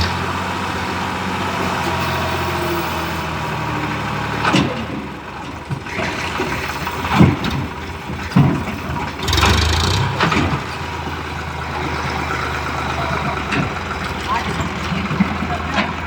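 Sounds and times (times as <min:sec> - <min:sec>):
tractor diesel engine running: 0:00.0 - 0:16.0
heavy engine knocks: 0:03.9 - 0:16.0.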